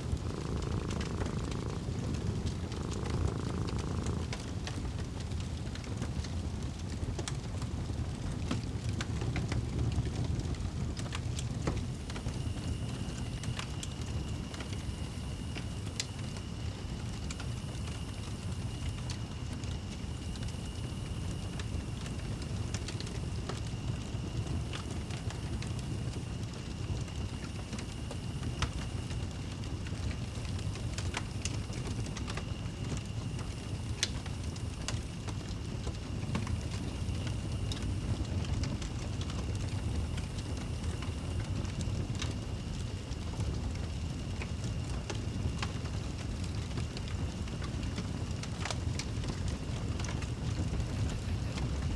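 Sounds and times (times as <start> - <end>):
wood fire crackling: 0.0 - 51.9
low rumble: 50.8 - 51.9.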